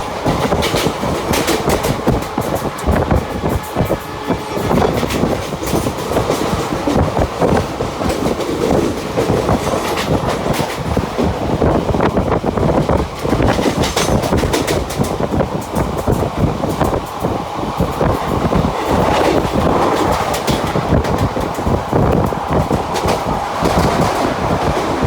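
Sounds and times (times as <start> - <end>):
train wheels rumbling on rails: 0.0 - 25.0
wheels clacking over rail joints: 0.0 - 25.0.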